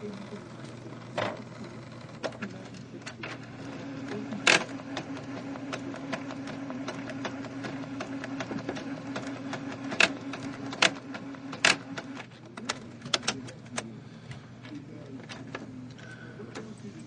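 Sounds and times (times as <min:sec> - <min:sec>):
printer motor whirring: 0:00.0 - 0:17.0
printer mechanism clunks: 0:01.1 - 0:01.5, 0:02.2 - 0:16.8
printer mechanism clicks: 0:02.1 - 0:13.9, 0:14.6 - 0:16.8.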